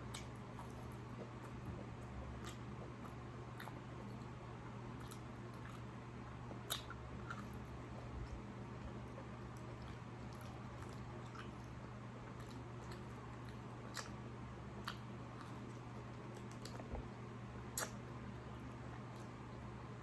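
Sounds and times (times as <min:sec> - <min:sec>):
person chewing food: 0:00.0 - 0:19.6
steady low hum: 0:00.0 - 0:20.0.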